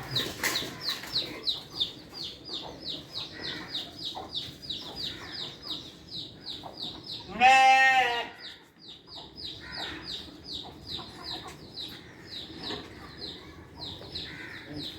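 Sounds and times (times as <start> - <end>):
birds chirping: 0.0 - 14.9
goat bleating: 7.3 - 8.3.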